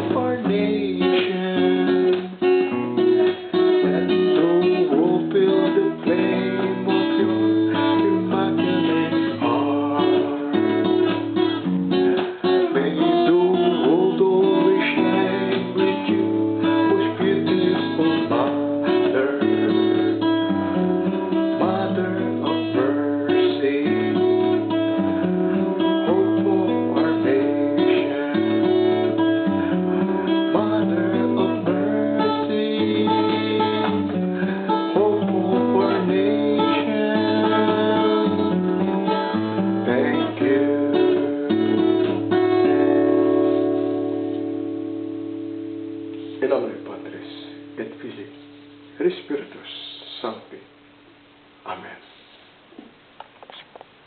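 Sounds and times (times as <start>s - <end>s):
strummed acoustic guitar: 0.0s - 50.8s.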